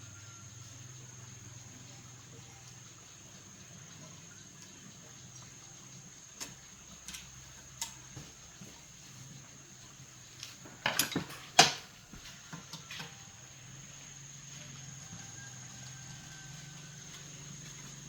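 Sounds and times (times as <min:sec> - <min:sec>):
tools clicking and clinking: 0:10.4 - 0:13.2.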